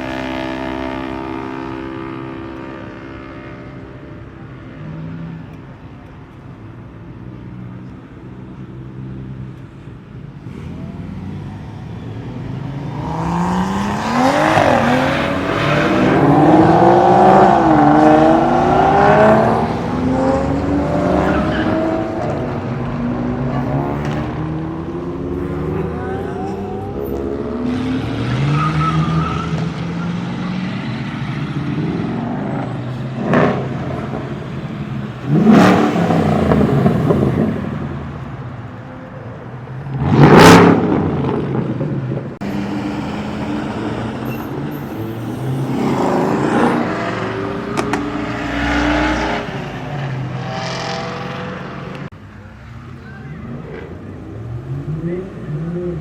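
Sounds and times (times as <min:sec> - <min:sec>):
cars driving past revving: 0:07.1 - 0:56.0.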